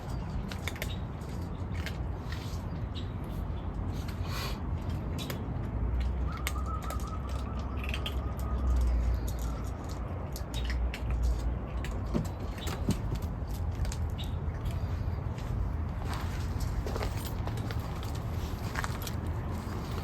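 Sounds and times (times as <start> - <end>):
birds chirping: 0.0 - 17.1
steady low rumble: 7.7 - 20.0.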